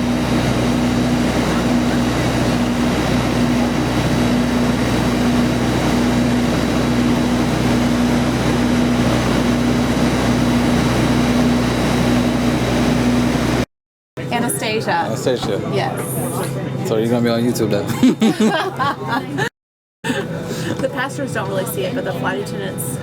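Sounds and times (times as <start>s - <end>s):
machinery drone: 0.0s - 13.6s.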